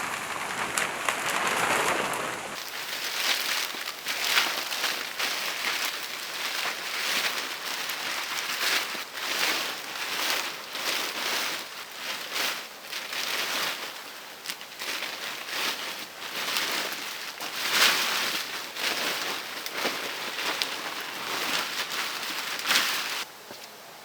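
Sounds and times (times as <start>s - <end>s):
rain patter: 0.0s - 12.3s.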